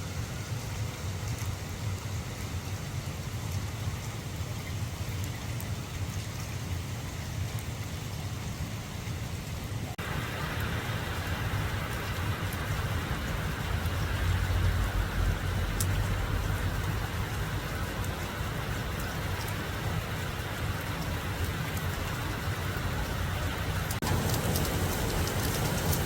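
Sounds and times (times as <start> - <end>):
steady rain falling: 0.0 - 26.0
low rumble: 10.0 - 26.0.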